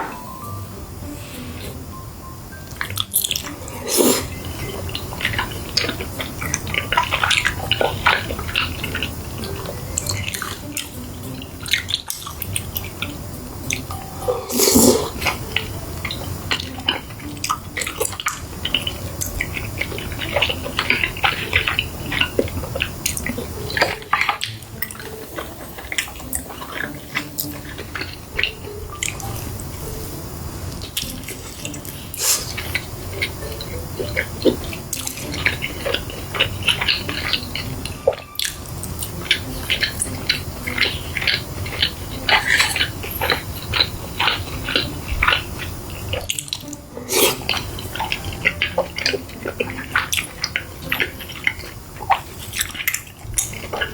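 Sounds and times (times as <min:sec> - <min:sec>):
person chewing and biting food: 0:30.8 - 0:53.9.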